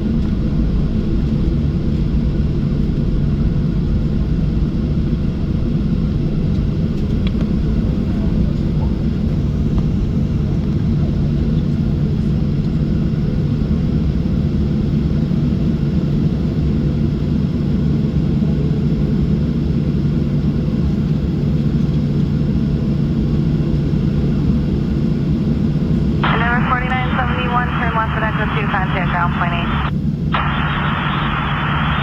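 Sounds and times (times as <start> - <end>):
aircraft engines humming: 25.7 - 32.0.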